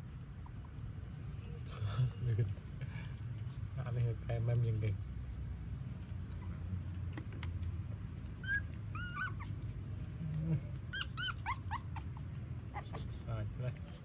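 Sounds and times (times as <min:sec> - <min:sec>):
puppies squeaking and whimpering: 0:08.4 - 0:09.8, 0:10.8 - 0:13.2.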